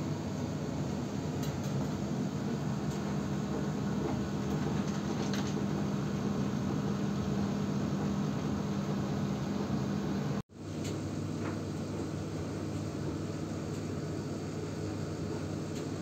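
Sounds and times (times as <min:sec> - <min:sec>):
noisy whir: 0:00.0 - 0:12.9
low mechanical hum: 0:00.0 - 0:16.0.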